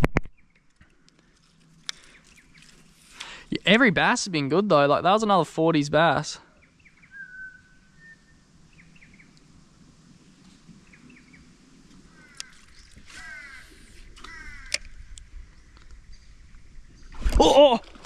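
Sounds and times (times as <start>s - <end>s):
bird calls: 1.9s - 3.5s, 6.4s - 9.5s, 10.8s - 17.2s.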